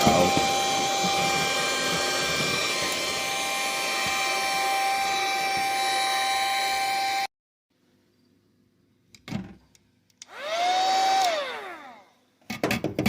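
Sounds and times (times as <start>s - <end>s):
vacuum cleaner running: 0.0s - 7.3s, 10.3s - 12.1s.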